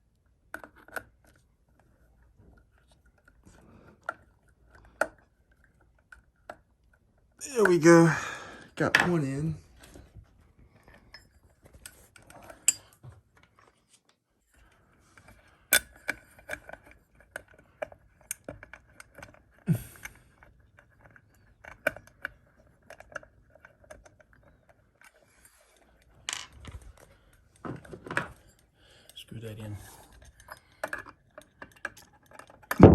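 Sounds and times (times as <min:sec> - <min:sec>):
metallic clicks of screws and hardware: 0:11.1 - 0:13.0, 0:30.0 - 0:32.8.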